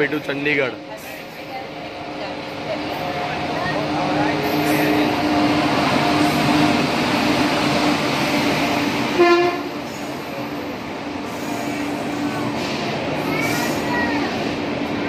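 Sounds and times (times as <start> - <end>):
train rumbling past: 0.0 - 15.0
train horn toot: 9.1 - 9.8.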